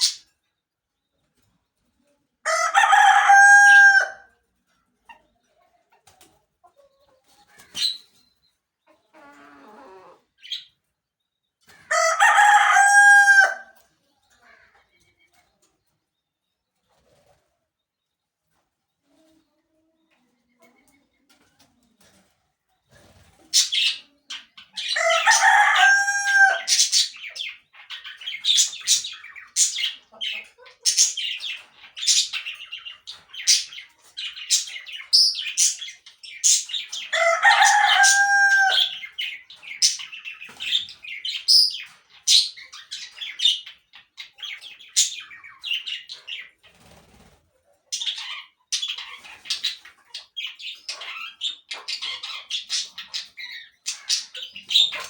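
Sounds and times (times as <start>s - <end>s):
parakeets chirping: 0.0s - 0.3s, 23.5s - 46.6s, 48.0s - 55.0s
rooster crowing: 2.5s - 4.3s, 11.9s - 13.8s, 25.0s - 26.7s, 37.2s - 38.9s.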